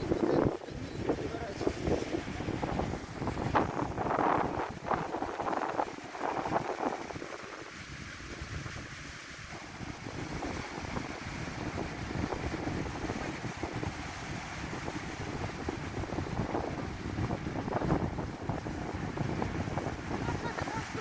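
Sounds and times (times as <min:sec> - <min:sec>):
sea waves washing: 0:00.0 - 0:21.0
wind buffeting microphone: 0:00.0 - 0:21.0.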